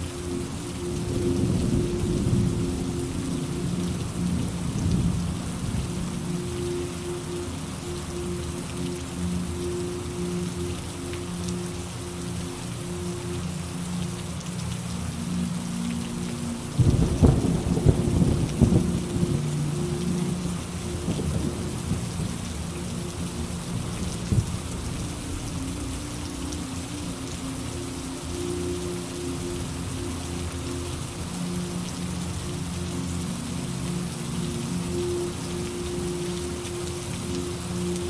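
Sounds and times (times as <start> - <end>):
steady rain falling: 0.0 - 38.0
thunder crack and rumble: 16.8 - 19.3.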